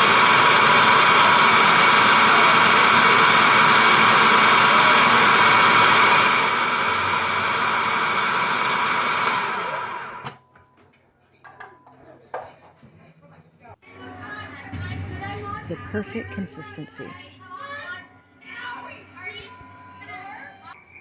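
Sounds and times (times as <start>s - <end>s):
food processor motor running: 0.0s - 10.3s.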